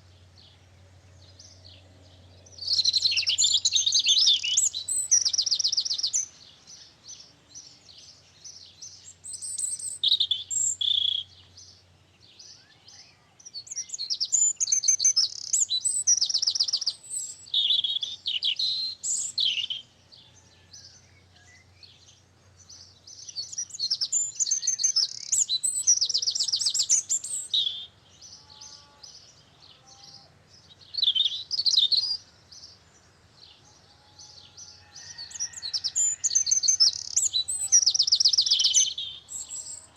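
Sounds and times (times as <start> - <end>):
soft bird chirps: 0.0 - 39.9
songbird trilling: 2.5 - 6.8, 8.8 - 11.5, 12.5 - 19.9, 23.2 - 29.0, 30.0 - 32.3, 35.0 - 39.9.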